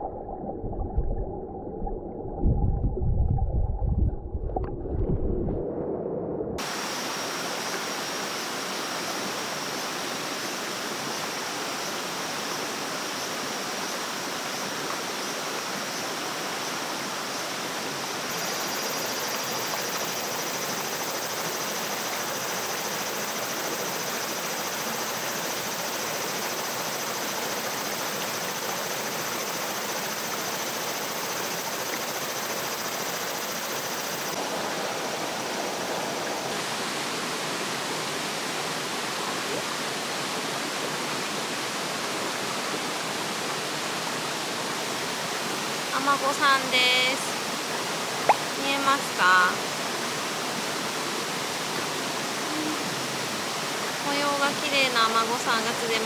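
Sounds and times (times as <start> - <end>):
stream water flowing: 6.6 - 56.0
faint high tone: 52.4 - 53.0.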